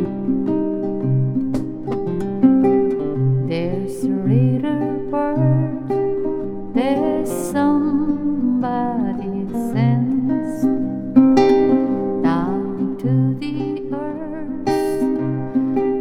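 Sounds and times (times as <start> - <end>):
acoustic guitar fingerpicking: 0.0 - 16.0.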